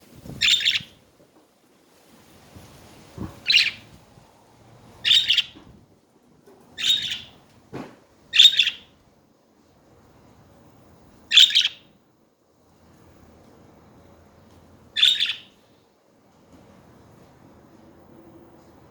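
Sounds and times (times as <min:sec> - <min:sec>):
budgerigars chirping: 0:00.4 - 0:00.9, 0:03.4 - 0:03.8, 0:05.0 - 0:05.6, 0:06.8 - 0:07.4, 0:08.3 - 0:08.9, 0:11.3 - 0:11.8, 0:15.0 - 0:15.5.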